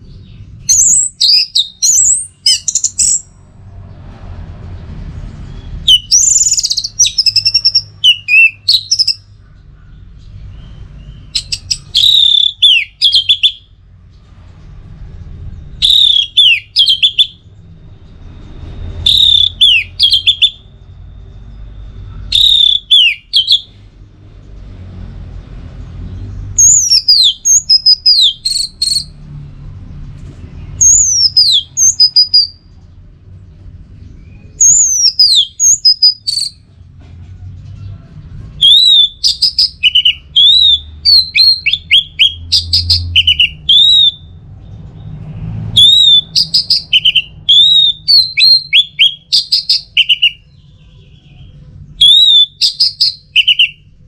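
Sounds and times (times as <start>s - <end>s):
thrush whistled song: 0.6s - 3.3s, 5.4s - 9.3s, 10.5s - 13.7s, 15.5s - 23.8s, 26.6s - 29.2s, 30.7s - 32.7s, 34.2s - 36.6s, 38.6s - 53.9s.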